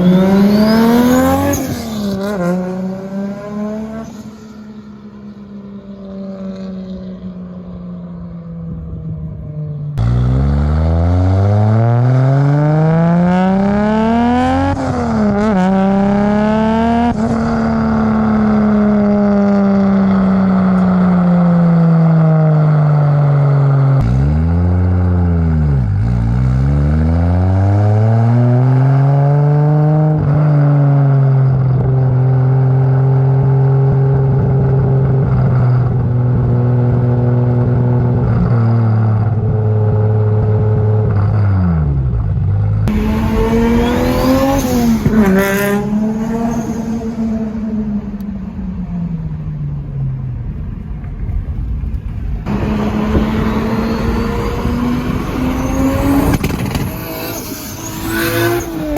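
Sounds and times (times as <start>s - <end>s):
car engine revving under load: 0.0s - 5.6s, 23.5s - 58.9s.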